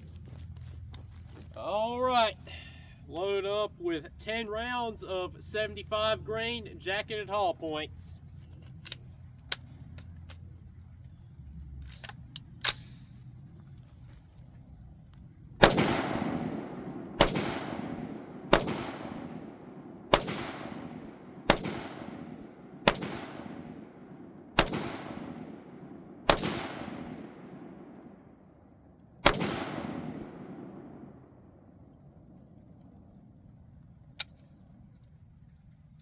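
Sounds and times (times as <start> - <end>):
rifle shots with echo: 15.6 - 28.5, 29.2 - 31.7.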